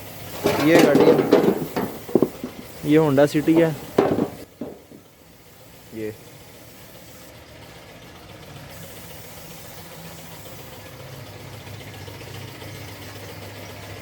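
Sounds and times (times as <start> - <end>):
background hiss: 0.0 - 7.3
engine humming: 0.0 - 14.0.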